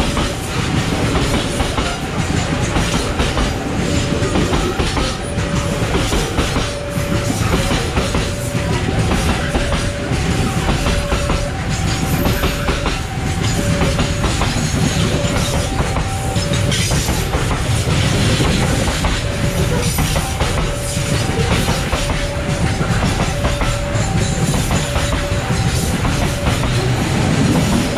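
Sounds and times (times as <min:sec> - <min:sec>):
freight train wheels rumbling: 0:00.0 - 0:27.9
level-crossing alarm ding-dong: 0:00.0 - 0:27.9
wheels clacking over rail joints: 0:00.0 - 0:27.9.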